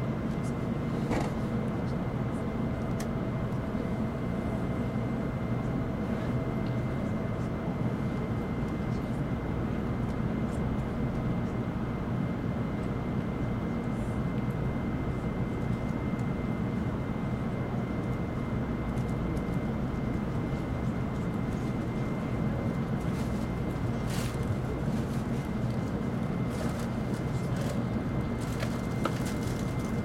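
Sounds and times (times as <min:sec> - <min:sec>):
train running rumble: 0:18.9 - 0:30.0.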